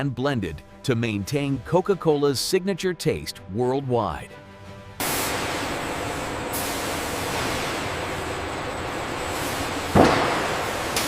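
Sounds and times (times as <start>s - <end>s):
factory machinery: 5.0s - 11.0s.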